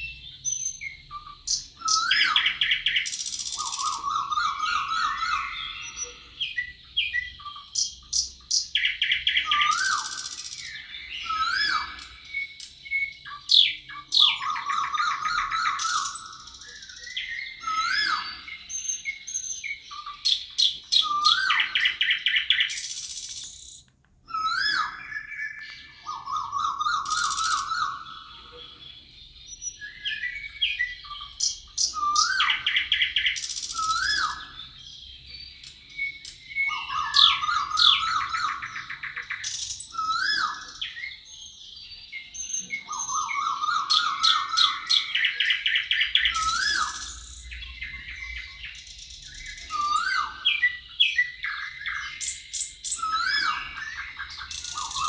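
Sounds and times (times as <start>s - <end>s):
short rising bird whistles: 0.0s - 7.5s, 9.3s - 23.5s, 24.2s - 28.3s, 29.5s - 34.8s, 35.8s - 41.2s, 42.2s - 52.2s, 52.9s - 55.0s
songbirds singing: 0.0s - 55.0s
bird trilled phrase: 24.5s - 28.7s.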